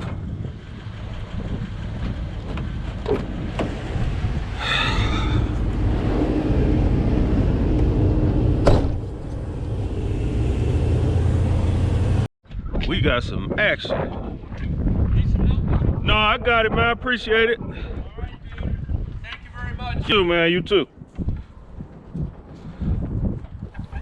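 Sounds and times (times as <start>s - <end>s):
truck engine rumbling: 0.0s - 12.3s.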